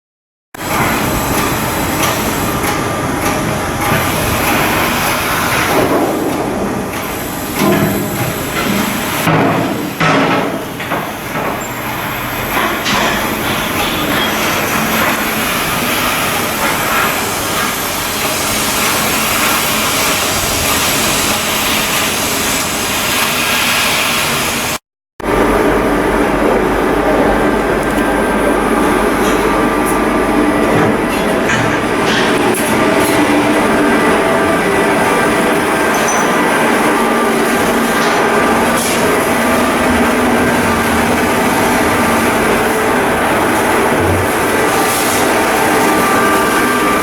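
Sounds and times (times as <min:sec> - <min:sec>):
metal knocks and clanks: 0:05.6 - 0:11.8, 0:30.6 - 0:33.4.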